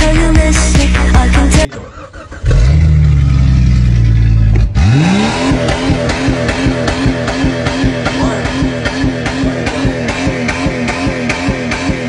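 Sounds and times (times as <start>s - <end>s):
car engine revving: 1.7s - 12.0s
music with pulsing beat: 5.4s - 12.0s.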